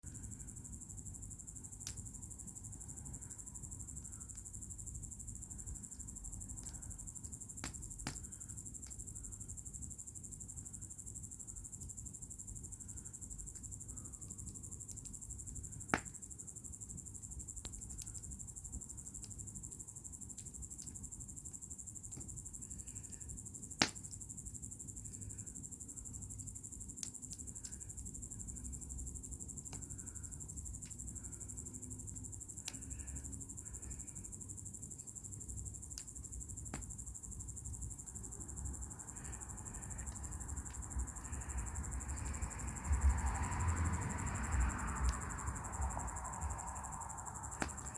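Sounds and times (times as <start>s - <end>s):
crickets chirring: 0.0s - 47.9s
burning wood popping: 6.0s - 9.0s, 15.8s - 16.2s, 22.0s - 24.4s, 47.6s - 47.9s.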